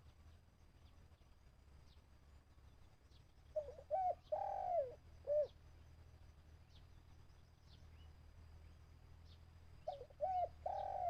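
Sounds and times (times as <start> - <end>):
small birds chirping: 0.0 - 11.0
dove cooing: 3.6 - 5.6, 9.8 - 11.0.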